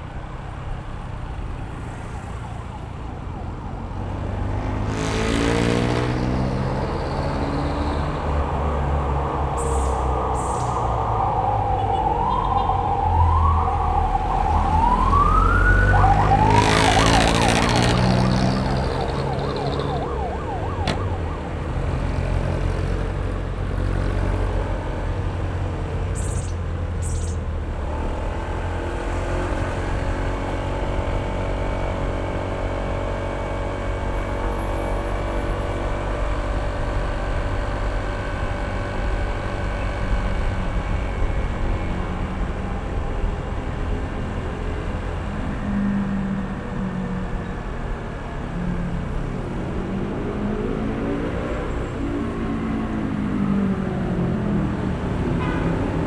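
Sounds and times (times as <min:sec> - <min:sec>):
road and wind noise: 0:00.0 - 0:56.0
siren wailing: 0:06.2 - 0:23.4.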